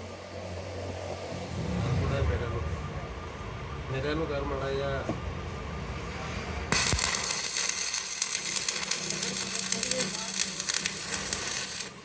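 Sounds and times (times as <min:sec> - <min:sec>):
arc welding crackling sizzle: 0:06.7 - 0:12.0.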